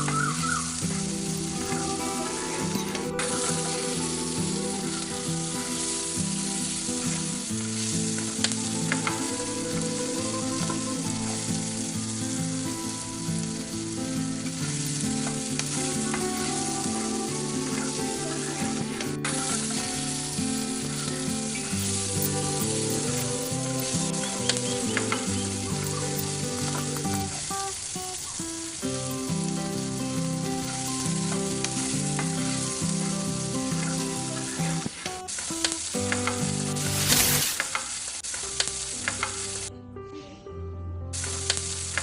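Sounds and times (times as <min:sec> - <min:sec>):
food sizzling in a small pan: 0:00.0 - 0:39.7, 0:41.2 - 0:42.0.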